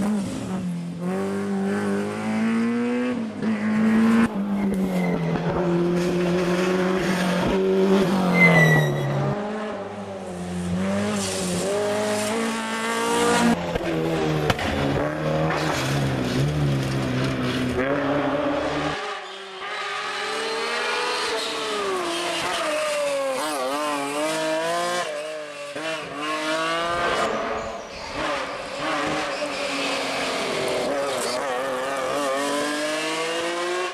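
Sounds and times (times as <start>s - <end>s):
rally car engines revving hard: 0.0s - 33.9s
tyre squeal: 8.2s - 9.4s, 27.3s - 30.4s.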